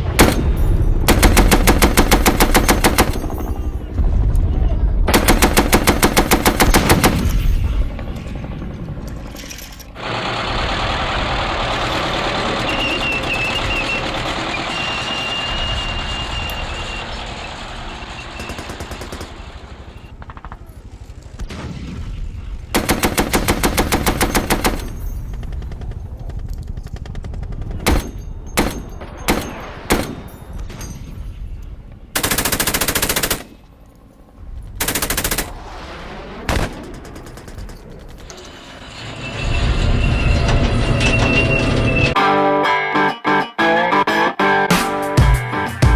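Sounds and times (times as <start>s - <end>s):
machine-gun bursts: 1.1s - 3.4s, 5.1s - 7.4s, 9.5s - 16.1s, 18.0s - 20.5s, 22.8s - 30.2s, 32.2s - 33.6s, 34.8s - 35.6s
rushing noise: 38.2s - 42.2s.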